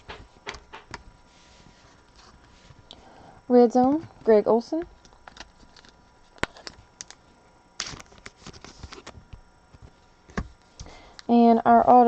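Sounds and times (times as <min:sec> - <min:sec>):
trading cards clicking and tapping: 0:00.0 - 0:01.0
cards rustling: 0:05.0 - 0:09.2.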